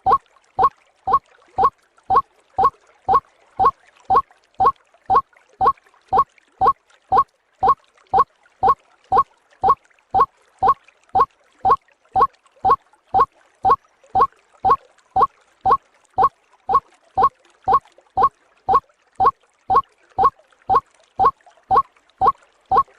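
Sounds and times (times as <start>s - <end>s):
waterhen call: 0.0s - 2.7s, 3.6s - 6.8s, 12.2s - 22.9s.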